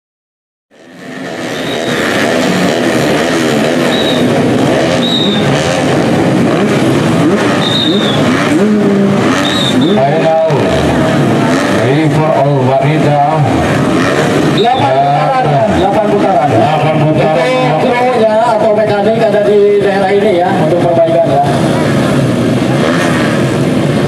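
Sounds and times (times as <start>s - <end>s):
motorcycle engines revving: 0.7s - 24.0s.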